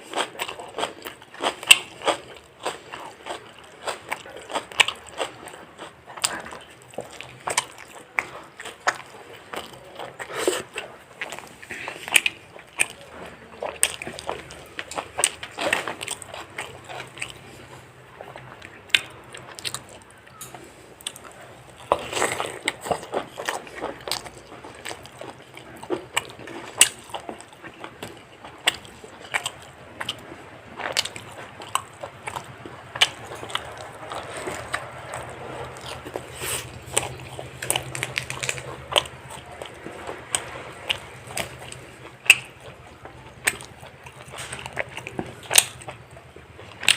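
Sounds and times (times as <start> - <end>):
crunchy bites and chewing: 0.0 - 46.9.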